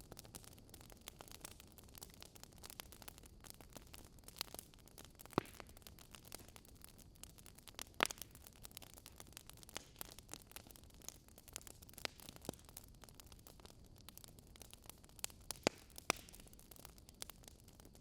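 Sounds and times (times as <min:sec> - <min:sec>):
wood fire crackling: 0:00.0 - 0:18.0
loud fire pops: 0:05.2 - 0:06.6, 0:15.2 - 0:16.5.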